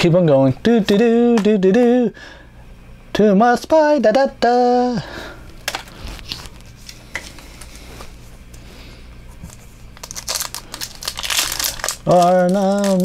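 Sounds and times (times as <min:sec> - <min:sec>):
trading cards rustling and clicking: 0:09.4 - 0:13.0
foil wrapper crackling: 0:09.9 - 0:13.0.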